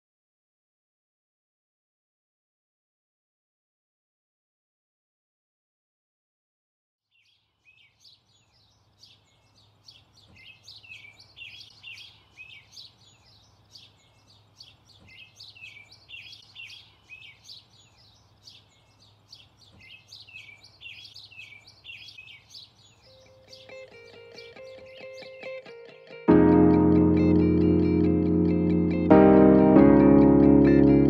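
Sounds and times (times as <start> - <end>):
songbirds chirping and trilling: 7.1 - 26.2.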